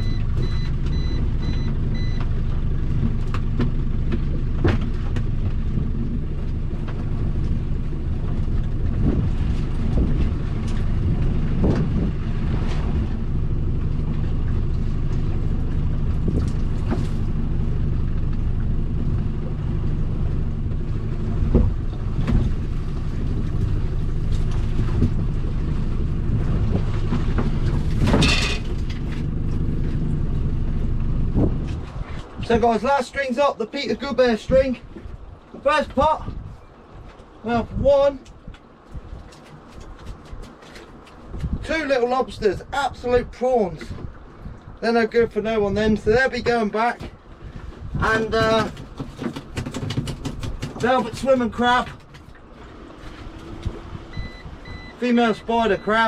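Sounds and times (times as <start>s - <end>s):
knocks and clatter: 0.0s - 7.6s, 26.4s - 30.1s, 48.0s - 52.5s
boat motor rumbling: 0.0s - 56.0s.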